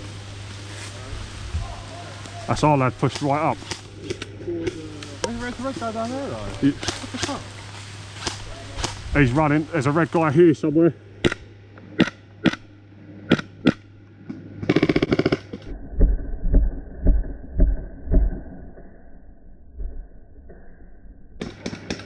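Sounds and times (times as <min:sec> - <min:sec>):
muffled low thumps: 0:15.7 - 0:18.7.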